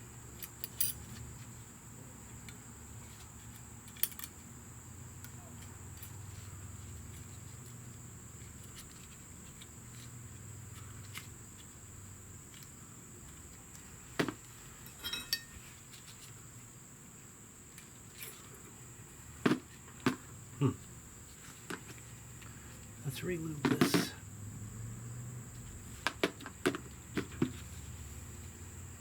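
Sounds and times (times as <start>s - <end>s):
faint high-pitched whine: 0.0s - 26.6s
metal parts clicking and tapping: 3.9s - 4.4s, 14.8s - 15.6s
ringing metal clink: 14.8s - 15.6s.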